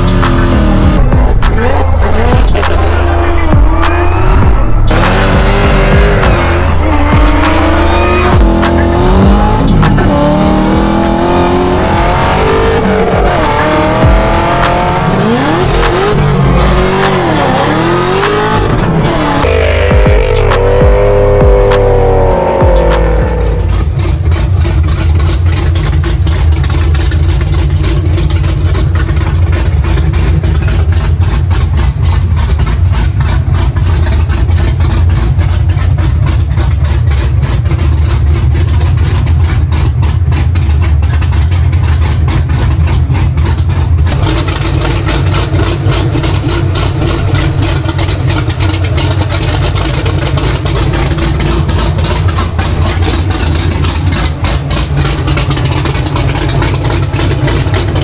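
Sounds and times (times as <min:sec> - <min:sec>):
car engine idling loudly: 0:00.0 - 0:58.0.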